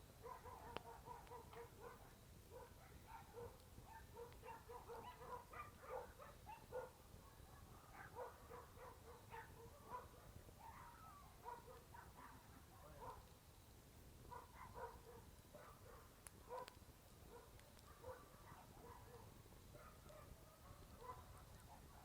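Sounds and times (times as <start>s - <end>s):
distant animal calls: 7.6s - 13.2s.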